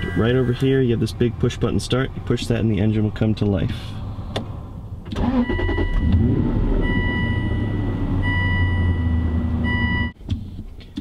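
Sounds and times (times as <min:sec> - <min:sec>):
high warning chime beeps: 0:00.0 - 0:00.9
car engine starting and idling: 0:00.0 - 0:10.6.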